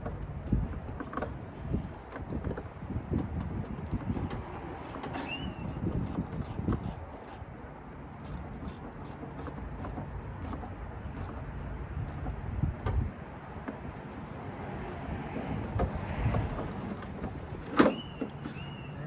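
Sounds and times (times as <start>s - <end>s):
hand tools clicking and clinking: 0.0s - 12.6s.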